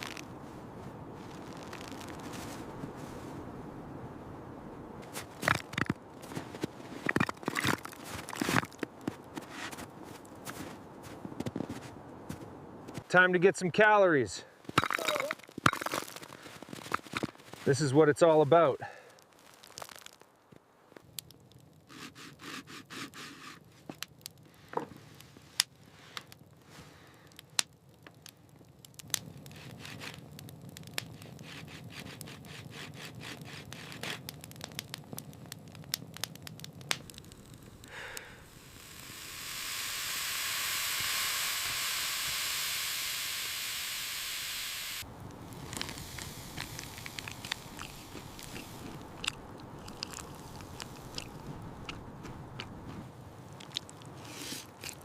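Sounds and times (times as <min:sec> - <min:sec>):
loud sizzle: 0:00.0 - 0:02.6, 0:33.4 - 0:51.4.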